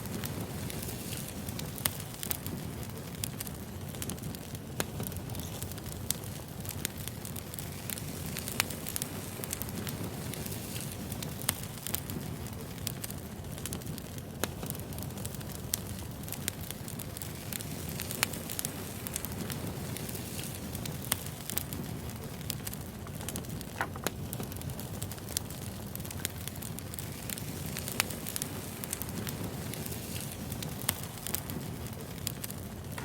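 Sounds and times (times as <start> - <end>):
fire flames rumbling: 0.0 - 33.0
logs crackling and popping: 0.0 - 33.0.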